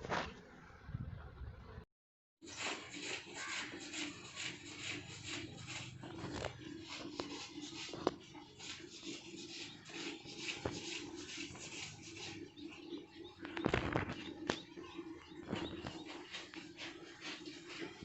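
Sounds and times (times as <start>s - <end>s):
fingers rubbing hair: 2.5s - 12.4s.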